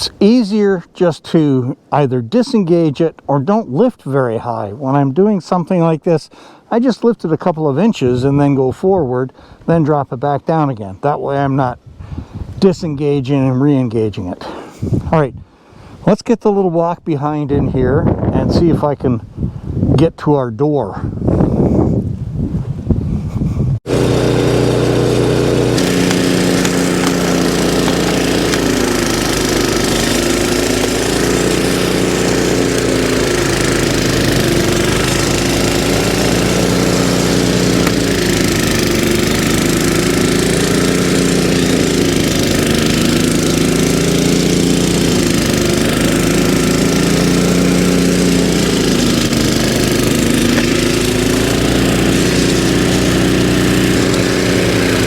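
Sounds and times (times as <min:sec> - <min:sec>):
snowblower engine running: 0:23.9 - 0:55.0.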